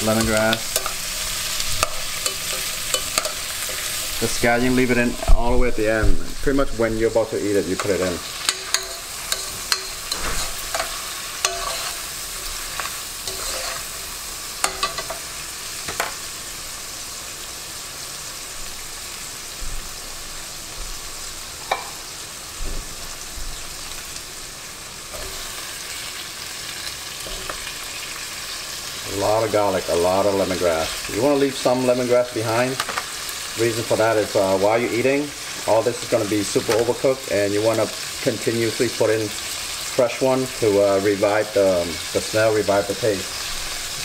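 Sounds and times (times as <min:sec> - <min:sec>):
aromatics sizzling in hot oil: 0:00.0 - 0:44.0
spatula scraping and knocking pot: 0:00.2 - 0:04.2, 0:07.8 - 0:12.1, 0:12.7 - 0:13.9.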